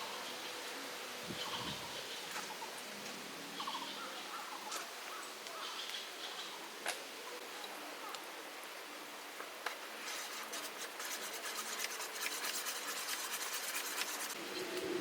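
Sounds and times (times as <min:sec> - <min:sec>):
scratchy rubbing: 0:10.0 - 0:14.4.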